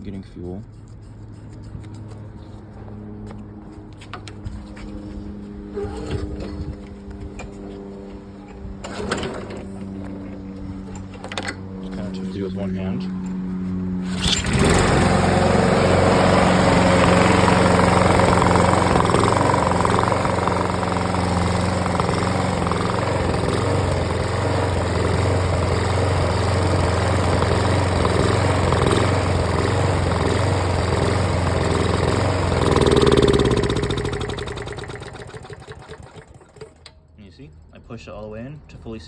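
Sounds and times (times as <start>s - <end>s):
lawnmower engine surging: 12.1s - 36.9s.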